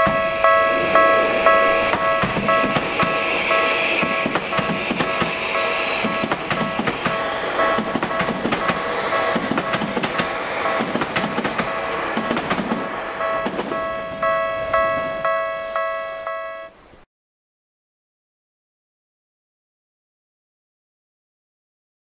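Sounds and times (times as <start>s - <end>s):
wheels clicking over rail joints: 0.0s - 15.4s
train pulling away: 0.0s - 16.5s
repeating electronic chime: 0.0s - 16.8s.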